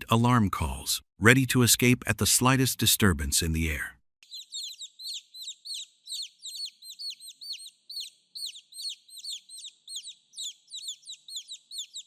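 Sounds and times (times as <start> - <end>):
guineafowl alarm calls: 4.3 - 12.0.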